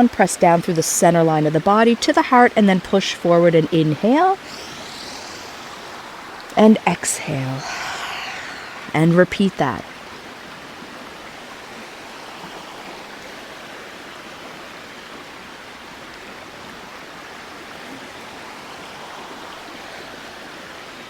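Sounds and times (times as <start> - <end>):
river water rushing: 4.2 - 9.7, 11.1 - 21.0.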